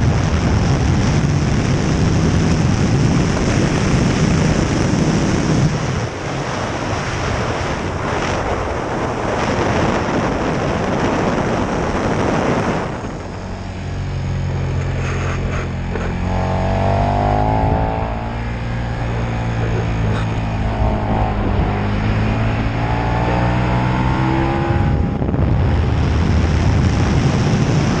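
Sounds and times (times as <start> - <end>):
motorcycle engine running: 0.0 - 28.0
wind noise on microphone: 0.0 - 28.0.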